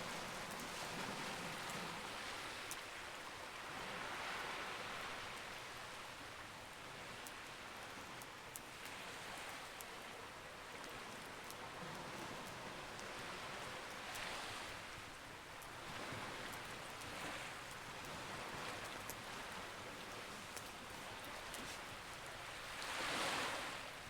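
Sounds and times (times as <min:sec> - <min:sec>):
ocean waves: 0:00.0 - 0:05.3, 0:15.8 - 0:24.0.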